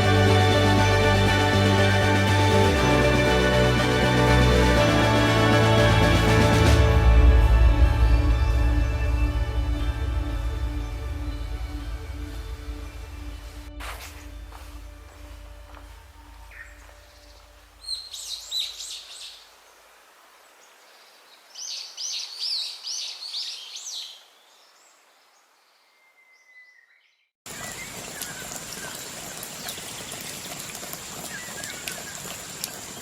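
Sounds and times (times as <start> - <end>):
songbird singing: 7.9 - 33.0.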